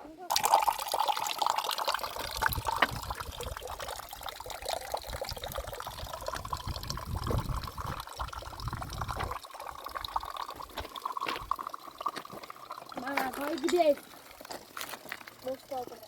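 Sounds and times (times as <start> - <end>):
water trickling and flowing: 0.2 - 16.0
low rumble on microphone: 5.4 - 9.4.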